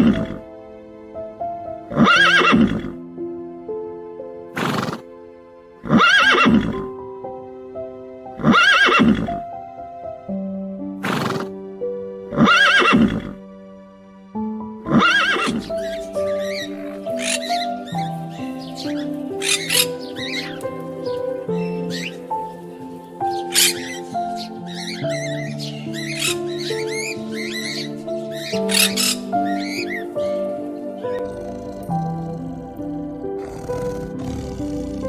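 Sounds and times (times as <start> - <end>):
background music: 0.0 - 35.0
wavering animal call: 5.9 - 6.9, 14.9 - 22.5, 23.2 - 35.0.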